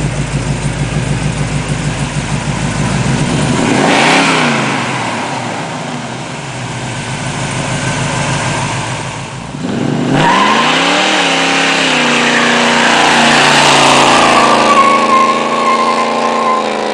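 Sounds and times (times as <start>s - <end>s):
pickup engine idling and revving: 0.0s - 16.9s.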